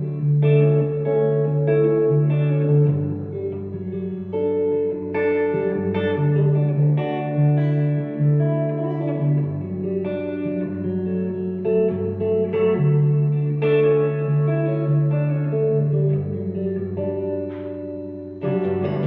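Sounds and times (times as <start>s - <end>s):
electric guitar with effects: 0.0s - 19.0s
bass line: 18.4s - 19.0s.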